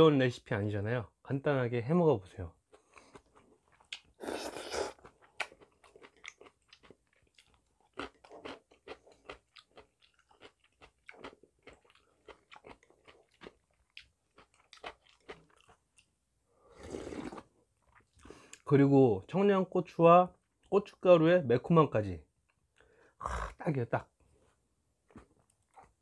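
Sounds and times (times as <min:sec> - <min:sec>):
wet chewing: 0:02.7 - 0:16.1.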